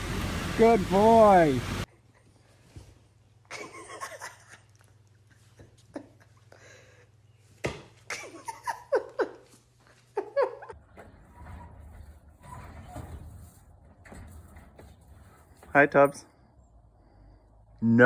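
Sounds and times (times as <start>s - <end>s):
faint steady hum: 0.0s - 1.9s.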